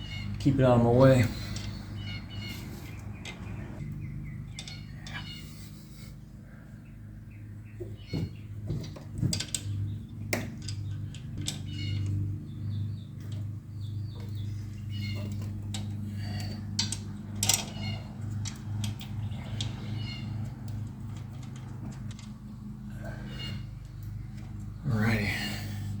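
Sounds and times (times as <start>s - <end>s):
metal tools clinking and knocking: 0.0s - 5.7s, 8.1s - 22.6s
steady low hum: 0.0s - 26.0s.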